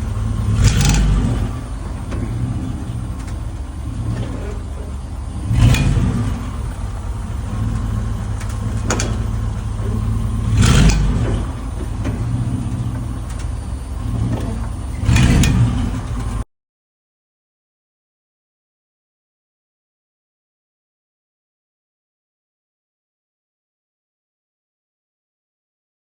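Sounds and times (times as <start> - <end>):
vehicle engine droning: 0.0 - 16.5.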